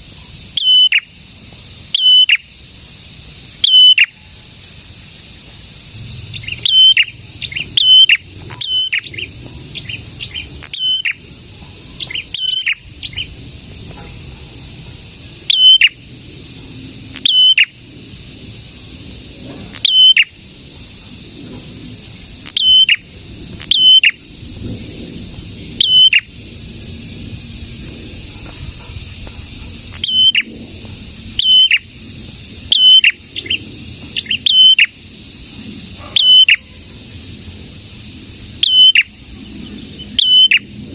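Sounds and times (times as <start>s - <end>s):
songbird sharp high chirps: 0.2s - 1.1s, 1.9s - 2.5s, 3.6s - 4.2s, 6.0s - 11.3s, 11.9s - 13.4s, 15.4s - 16.0s, 17.2s - 18.3s, 19.7s - 20.9s, 22.4s - 24.3s, 25.7s - 26.3s, 28.4s - 30.5s, 31.4s - 35.0s, 35.8s - 36.7s, 38.6s - 40.8s.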